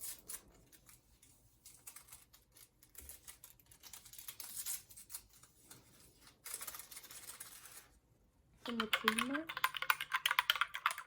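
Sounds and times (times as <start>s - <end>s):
kitchen items clicking and rustling: 8.7s - 11.0s.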